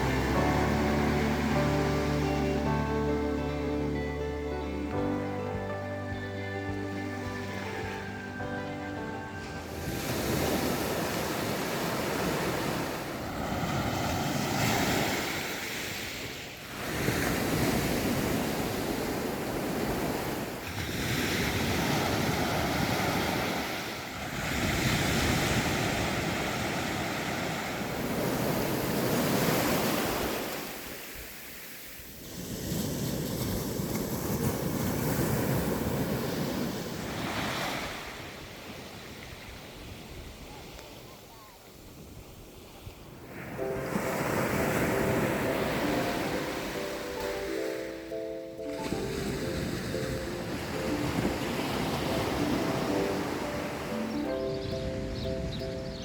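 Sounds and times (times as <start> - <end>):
ocean waves breaking on shore: 0.0 - 56.0
wind on microphone: 48.8 - 56.0.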